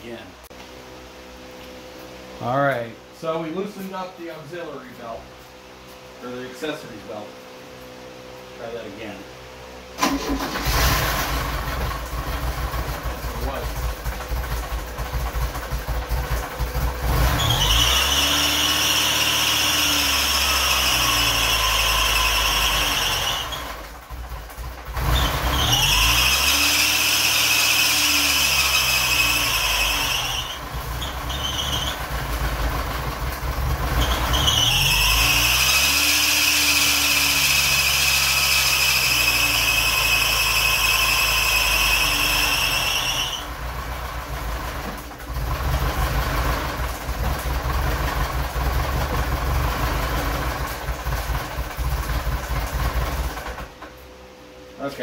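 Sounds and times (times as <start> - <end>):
car engine running rough: 10.0 - 54.0
loud high-pitched squeal: 17.2 - 23.9, 25.0 - 32.2, 33.9 - 43.6.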